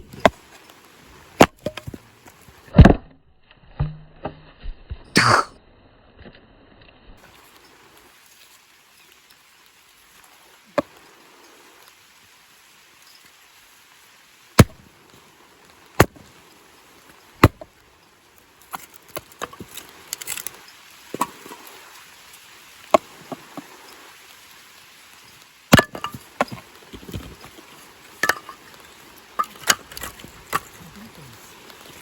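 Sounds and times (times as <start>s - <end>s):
axe chopping firewood: 1.4s - 2.0s, 2.7s - 3.2s, 14.6s - 14.8s, 16.0s - 16.2s, 17.4s - 17.7s, 22.9s - 23.6s, 25.7s - 27.5s, 28.2s - 28.8s, 29.4s - 30.8s
split wood clattering: 28.2s - 28.8s.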